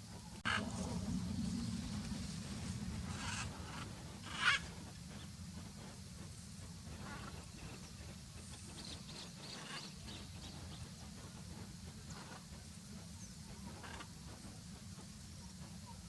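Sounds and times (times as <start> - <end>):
steady low rumble: 0.0 - 16.0
macaws squawking: 3.2 - 4.7.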